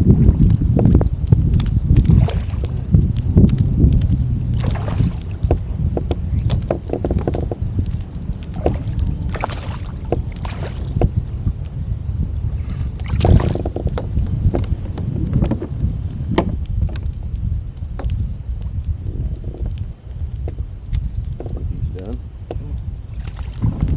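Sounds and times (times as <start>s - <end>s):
wind rumble on microphone: 0.0s - 23.9s
small knocks and clicks: 0.4s - 11.1s, 16.4s - 17.3s, 18.0s - 18.7s
water splashing against a kayak: 1.9s - 11.2s, 12.9s - 14.0s.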